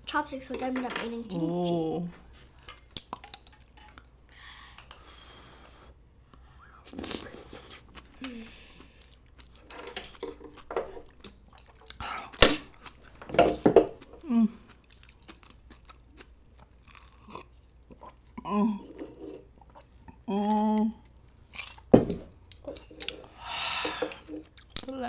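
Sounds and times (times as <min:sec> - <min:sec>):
chewing and crunching food: 0:06.9 - 0:25.0.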